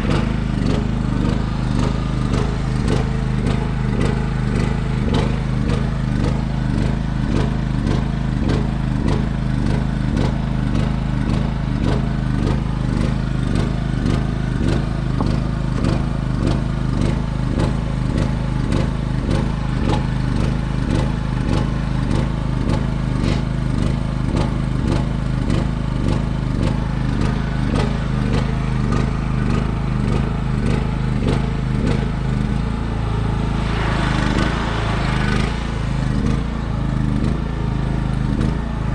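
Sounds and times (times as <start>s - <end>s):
engine running with regular pulse: 30.2s - 38.9s.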